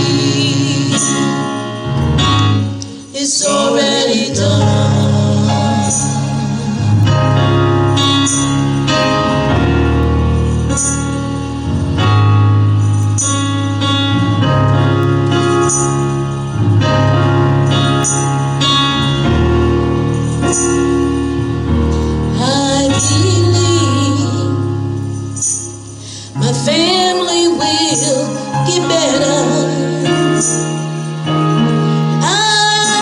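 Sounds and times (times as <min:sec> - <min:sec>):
bass line: 0:00.0 - 0:02.8, 0:03.5 - 0:32.3
sustained keyboard chords: 0:00.0 - 0:33.0
jingling percussion hits: 0:07.9 - 0:14.0, 0:15.3 - 0:24.2, 0:25.0 - 0:26.9.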